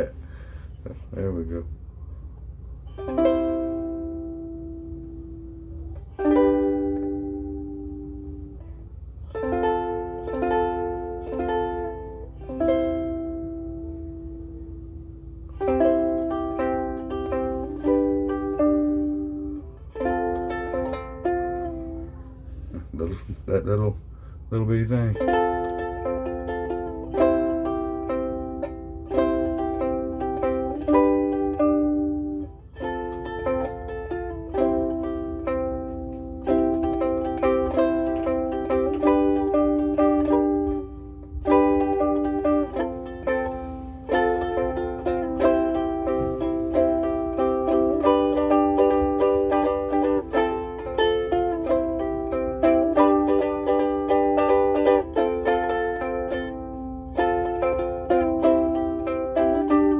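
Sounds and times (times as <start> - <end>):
ukulele chords strummed: 2.4 - 59.9.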